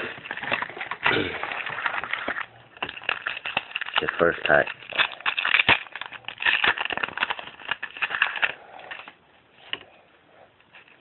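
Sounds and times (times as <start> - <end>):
wrapper being torn and crinkled: 0.0 - 9.2.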